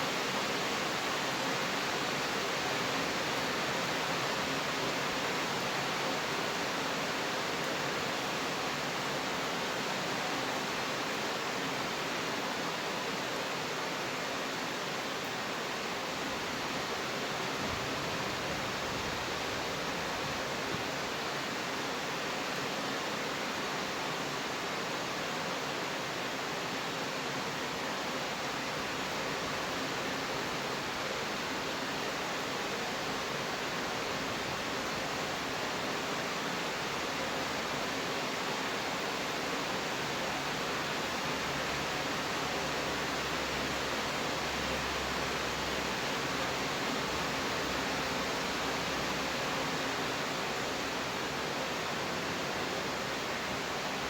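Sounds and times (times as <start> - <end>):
steady rainfall hiss: 0.0 - 54.0.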